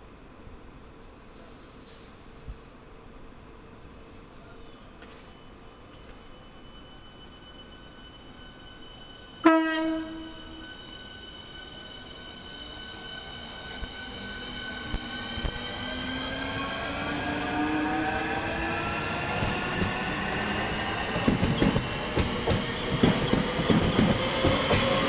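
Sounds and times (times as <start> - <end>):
train traction motors whining: 5.9 - 25.0
wheels clattering over rail joints: 19.2 - 25.0.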